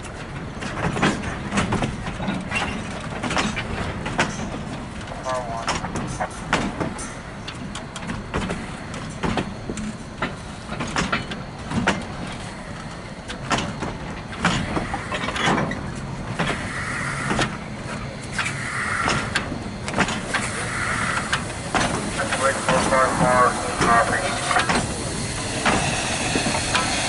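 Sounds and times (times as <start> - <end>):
wheels and couplers clanking: 5.6 - 27.0.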